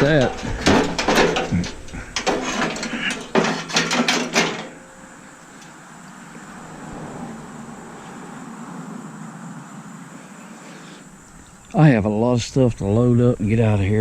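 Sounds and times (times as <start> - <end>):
metal clattering and knocking: 0.0 - 5.3
steady background hiss: 0.0 - 14.0.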